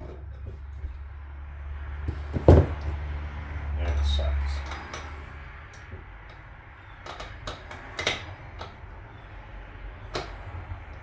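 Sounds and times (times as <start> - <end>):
tools and metal parts clicking: 4.6 - 8.8.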